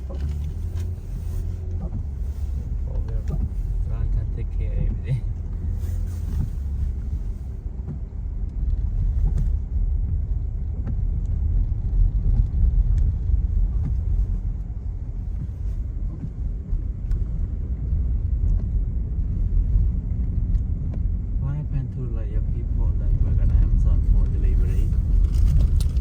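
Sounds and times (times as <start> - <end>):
road and engine rumble: 0.0 - 26.0.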